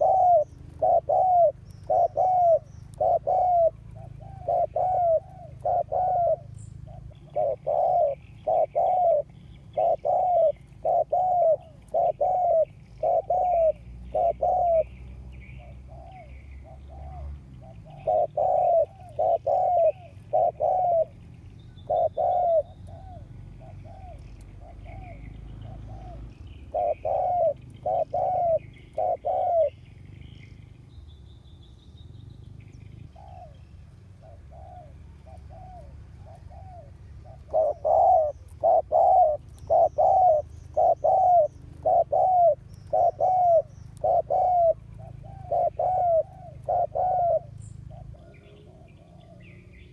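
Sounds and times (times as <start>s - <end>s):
dove cooing: 0.0s - 30.7s, 32.8s - 49.9s
small birds chirping: 0.0s - 49.9s.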